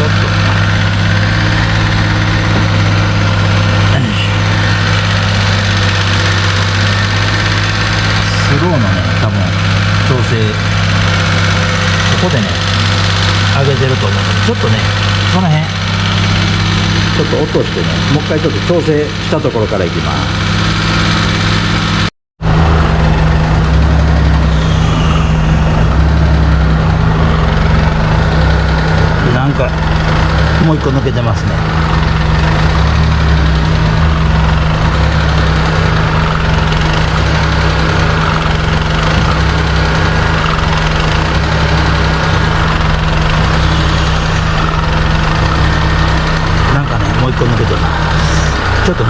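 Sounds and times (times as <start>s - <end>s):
truck engine idling: 0.0s - 49.0s.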